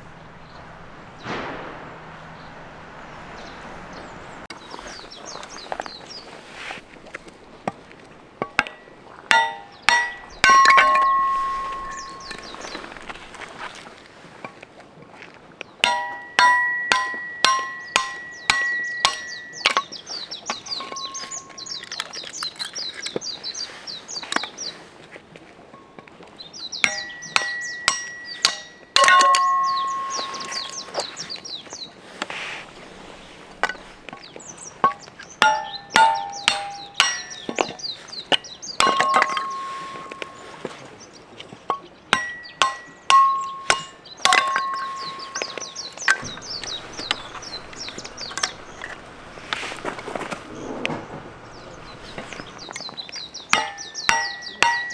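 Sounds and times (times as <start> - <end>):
hammer clanging on metal: 0.0 - 13.9, 15.8 - 23.2, 26.8 - 31.5, 32.2 - 40.9, 41.7 - 54.9
birds chirping: 0.0 - 14.2, 15.5 - 54.9.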